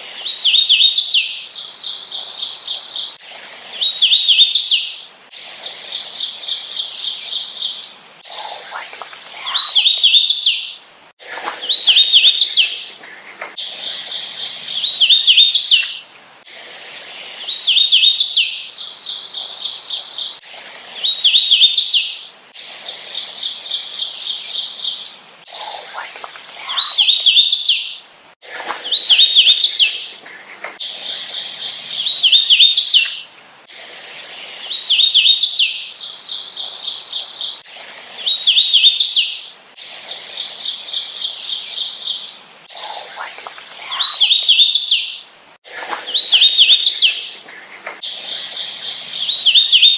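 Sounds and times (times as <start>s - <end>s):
warbler singing rising notes: 5.7s - 10.9s, 11.6s - 16.1s, 23.1s - 28.0s, 28.8s - 33.3s, 40.4s - 49.9s.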